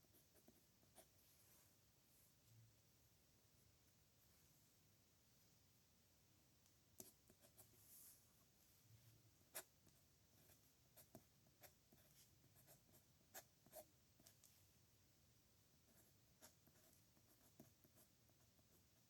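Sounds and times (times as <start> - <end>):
pen scratching on paper: 10.4 - 14.4, 15.9 - 18.7.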